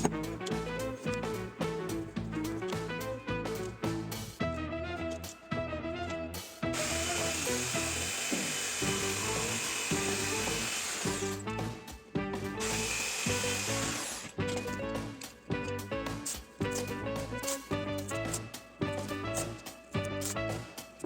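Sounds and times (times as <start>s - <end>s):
background music: 0.0s - 21.0s
power tool running: 6.8s - 11.4s, 12.6s - 14.4s.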